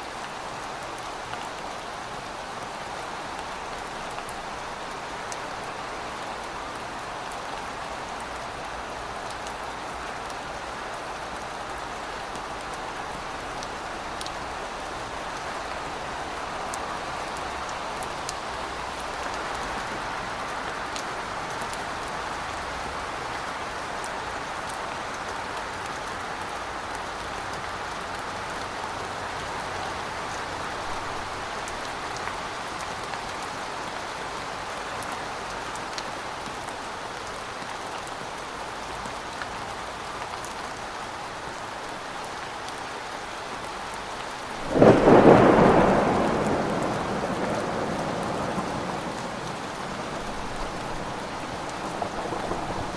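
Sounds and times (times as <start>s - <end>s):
steady rain hiss: 0.0s - 52.9s
raindrop ticks: 44.7s - 52.9s.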